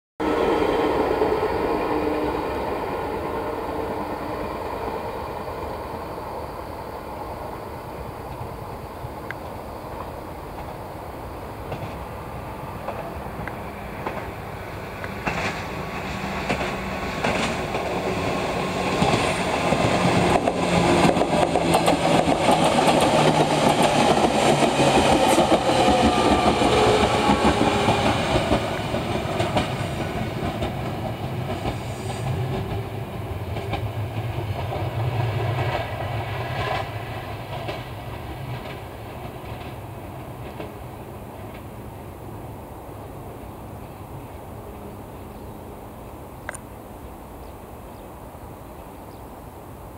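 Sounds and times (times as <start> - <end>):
electric train running hum: 0.2 - 49.9
wheels clicking over rail joints: 12.8 - 18.2, 18.8 - 41.8.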